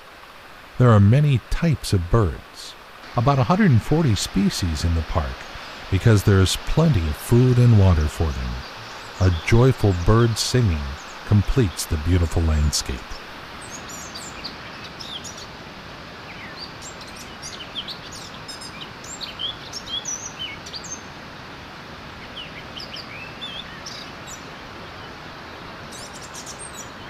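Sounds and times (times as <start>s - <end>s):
steady background hiss: 0.0s - 27.0s
songbirds chirping and singing: 7.0s - 13.1s.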